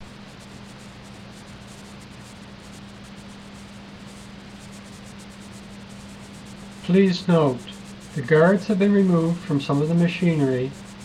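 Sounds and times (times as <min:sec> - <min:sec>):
low electrical hum: 0:00.0 - 0:11.0
steady hiss: 0:00.0 - 0:11.0.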